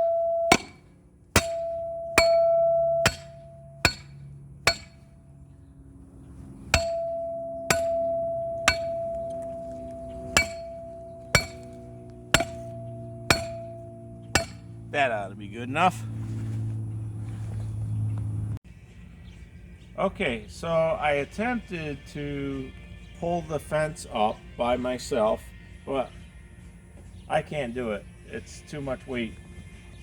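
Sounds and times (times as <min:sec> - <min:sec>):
hammer striking metal spike: 0:00.5 - 0:05.1, 0:06.7 - 0:09.7, 0:10.3 - 0:14.8.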